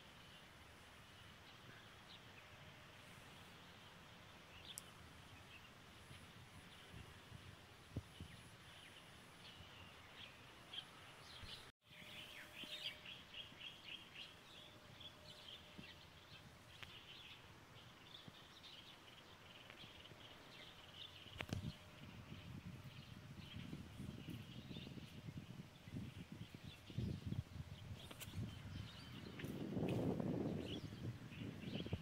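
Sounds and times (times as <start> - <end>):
small birds chirping: 3.2 - 7.3, 7.9 - 32.0.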